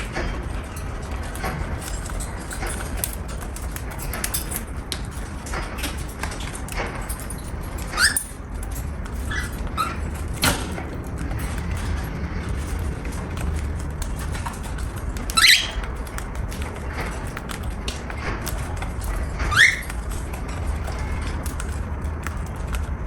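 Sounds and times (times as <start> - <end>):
light clicks and taps: 0.0 - 23.0
cockatiel chirping: 15.2 - 16.2, 19.5 - 20.0.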